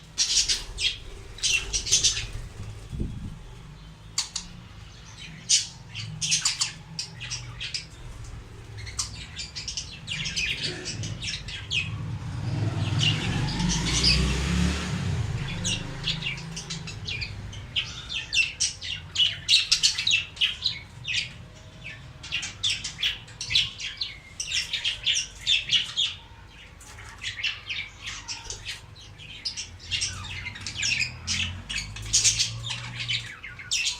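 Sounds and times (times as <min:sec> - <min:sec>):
budgerigars chattering: 0:00.2 - 0:11.9, 0:15.4 - 0:33.9
rushing noise with low rumble: 0:00.4 - 0:03.9, 0:07.9 - 0:18.2.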